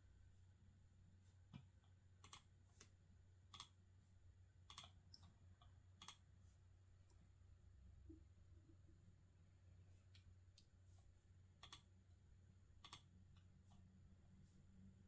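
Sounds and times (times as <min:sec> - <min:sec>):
faint low hum: 0:00.0 - 0:15.0
keyboard and mouse clicks: 0:02.2 - 0:02.9, 0:04.7 - 0:05.3, 0:06.0 - 0:06.2, 0:11.6 - 0:11.9, 0:12.8 - 0:13.1.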